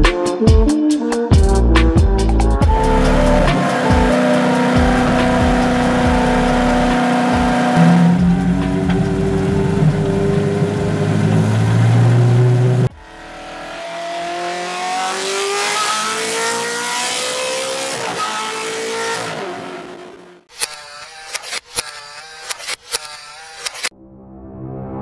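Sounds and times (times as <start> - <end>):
car engine accelerating: 2.6 - 20.5
car engine drone: 2.6 - 20.5
gear change: 2.6 - 23.9.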